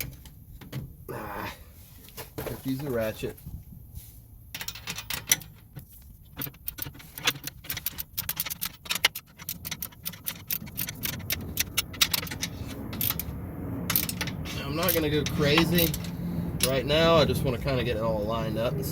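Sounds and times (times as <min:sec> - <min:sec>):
ratchet wrench clicking: 0:06.4 - 0:13.3, 0:13.9 - 0:16.8.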